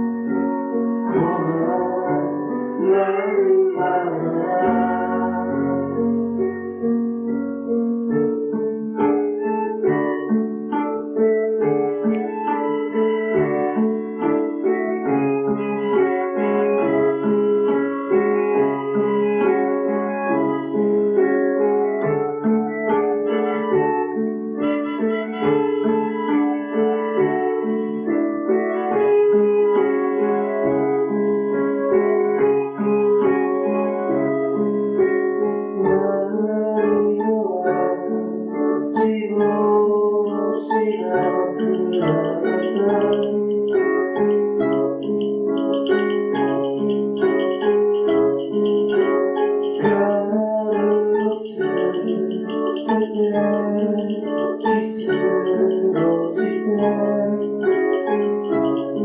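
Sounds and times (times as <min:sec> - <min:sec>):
piano chords: 0:00.0 - 0:59.0
acoustic guitar picking: 0:07.8 - 0:59.0.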